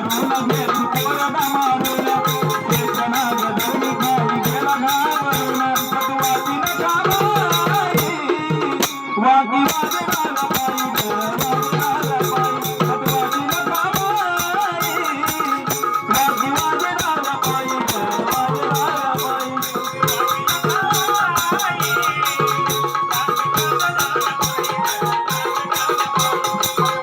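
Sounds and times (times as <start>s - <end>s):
fast dense percussion: 0.0s - 27.0s.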